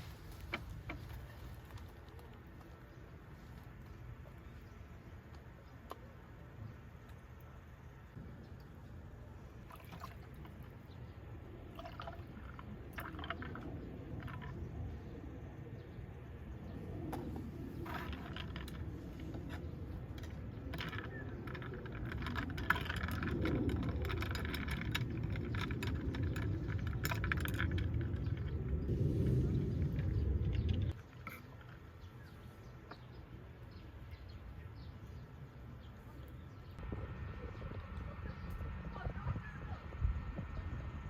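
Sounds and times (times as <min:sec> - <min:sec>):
low rumble: 0:08.1 - 0:31.0.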